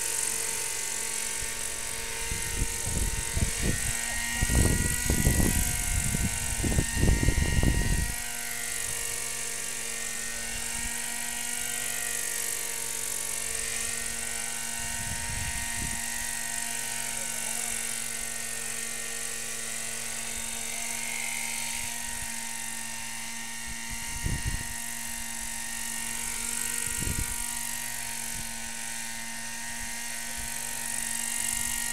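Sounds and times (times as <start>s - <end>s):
model aircraft engine whine: 0.0s - 31.9s
wind buffeting microphone: 2.3s - 8.2s, 24.1s - 24.7s, 26.9s - 27.4s.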